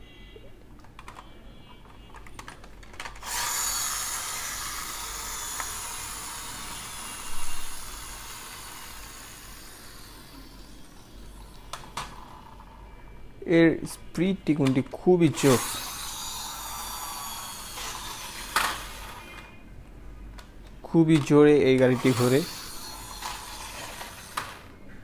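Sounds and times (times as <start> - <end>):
toy car handling clicks: 0.8 - 6.2, 17.7 - 19.5, 21.1 - 24.7
toy car motor whirring: 3.0 - 12.7, 15.4 - 19.5, 21.9 - 24.7.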